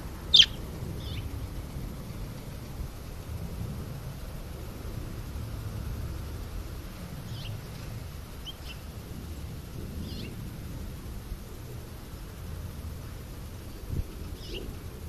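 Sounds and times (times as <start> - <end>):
steady low rumble: 0.0 - 15.0
faint bird chirps: 0.3 - 1.3, 14.2 - 14.8.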